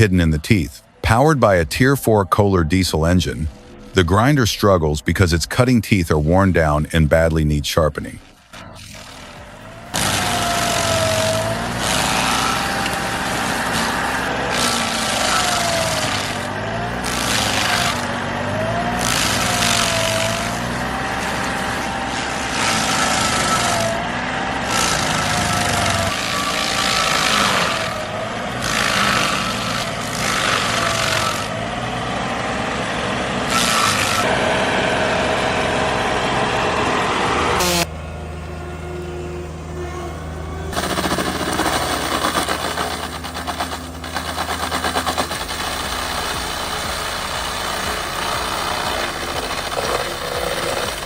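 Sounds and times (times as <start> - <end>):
diesel engine under load: 0.0 - 51.0
grinder cutting through stump: 8.3 - 51.0.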